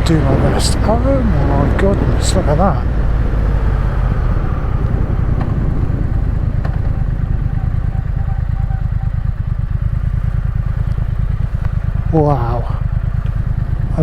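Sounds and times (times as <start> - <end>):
motorcycle engine at low revs: 0.0 - 14.0.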